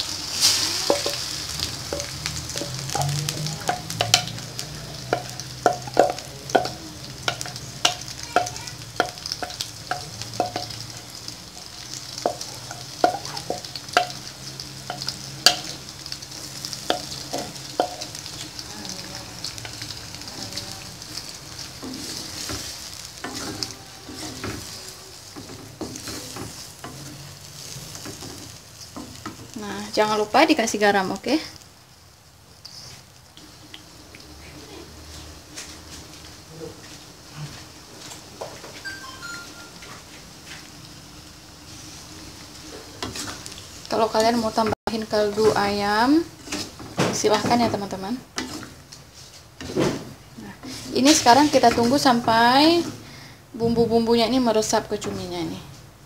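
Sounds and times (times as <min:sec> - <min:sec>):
spatula knocking and scraping wok: 0:00.0 - 0:18.6, 0:21.2 - 0:29.6, 0:42.5 - 0:43.5, 0:44.1 - 0:48.9, 0:49.6 - 0:53.0
curry sizzling in a wok: 0:00.0 - 0:56.0.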